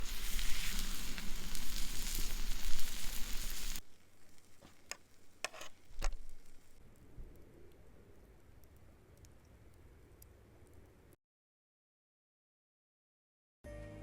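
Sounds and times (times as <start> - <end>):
steak sizzling on hot stone: 0.0 - 6.8.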